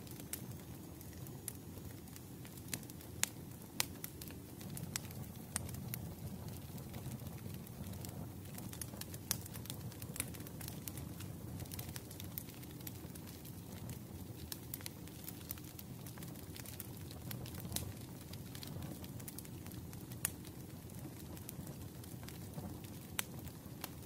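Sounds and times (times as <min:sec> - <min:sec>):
wood fire popping and snapping: 0:00.0 - 0:24.0.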